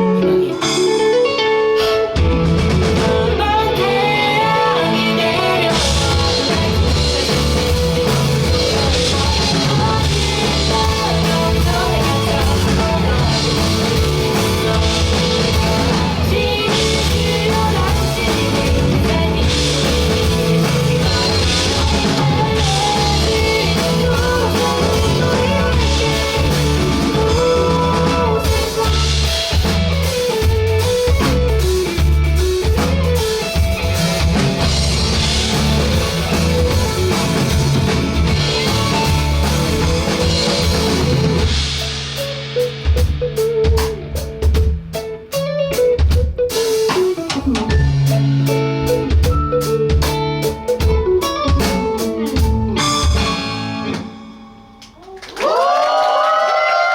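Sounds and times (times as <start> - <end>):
bass guitar: 0.0 - 56.2
drum kit: 0.0 - 56.9
electric guitar: 0.0 - 56.9
person singing: 2.8 - 30.4.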